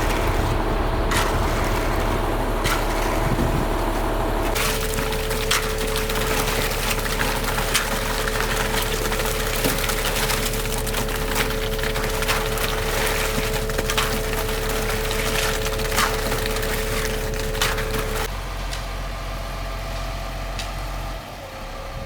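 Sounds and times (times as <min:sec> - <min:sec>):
machine motor humming: 0:00.0 - 0:10.0
gritty churning: 0:00.0 - 0:18.3.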